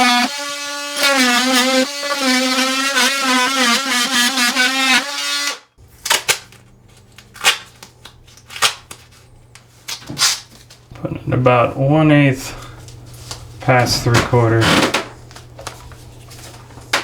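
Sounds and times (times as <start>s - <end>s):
power saw cutting wood: 0.0s - 5.7s.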